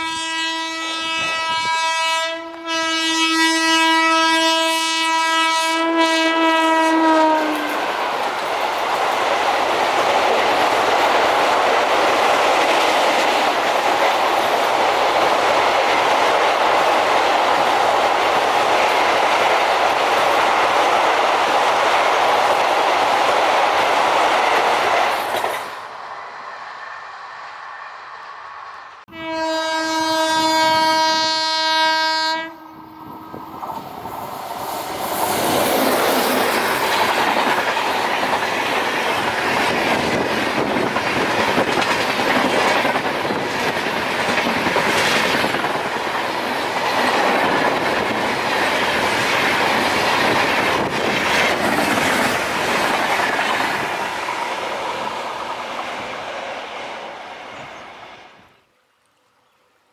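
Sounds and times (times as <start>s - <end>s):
locomotive horn blast: 0.0s - 7.8s, 29.1s - 33.4s
train wheels clattering: 7.4s - 25.8s, 33.6s - 56.4s.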